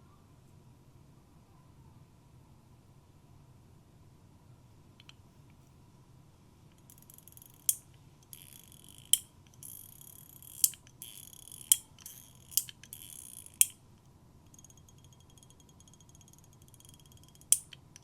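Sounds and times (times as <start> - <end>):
sharp metallic click: 6.8 - 13.8, 14.5 - 18.0.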